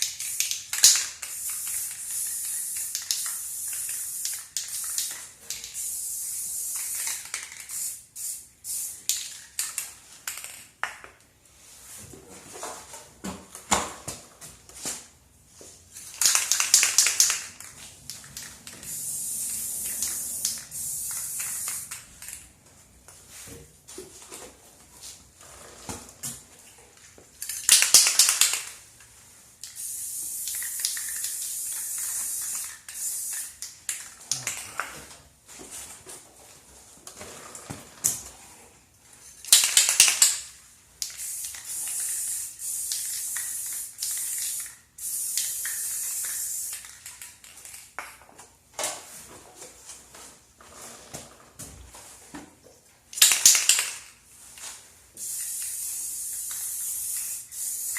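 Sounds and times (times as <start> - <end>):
aerosol spray hissing: 18.8 - 22.0, 29.7 - 33.5, 55.2 - 57.9.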